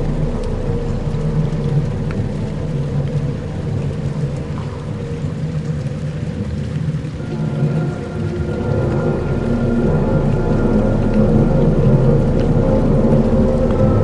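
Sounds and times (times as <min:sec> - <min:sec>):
low rumble: 0:00.0 - 0:14.0
rain hiss: 0:00.0 - 0:14.0.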